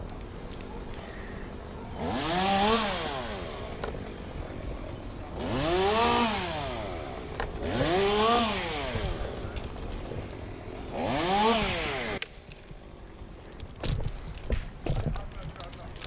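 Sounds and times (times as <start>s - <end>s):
chainsaw revving: 1.9s - 13.5s.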